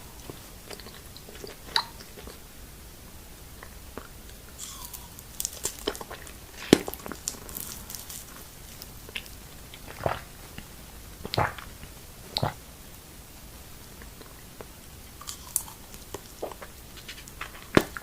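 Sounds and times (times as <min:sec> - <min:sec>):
person chewing: 0:00.0 - 0:02.6, 0:03.5 - 0:12.7, 0:13.8 - 0:18.0
crisp bites and crackles: 0:04.3 - 0:10.2, 0:15.2 - 0:18.0.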